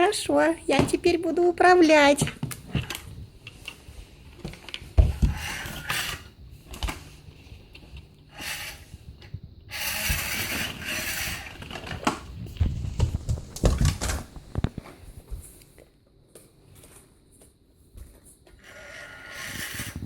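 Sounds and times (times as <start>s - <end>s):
toy truck electric motor whirring: 5.2s - 6.3s, 8.3s - 9.0s, 9.7s - 12.0s, 18.6s - 20.0s.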